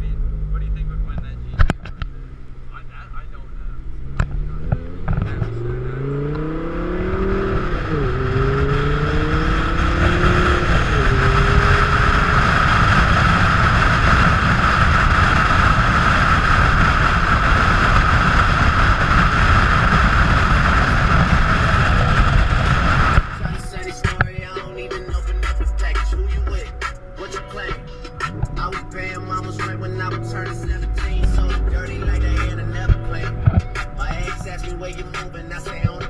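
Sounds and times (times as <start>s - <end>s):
car engine accelerating: 0.0s - 36.0s
wind rushing over microphone: 3.9s - 25.2s, 27.7s - 36.0s.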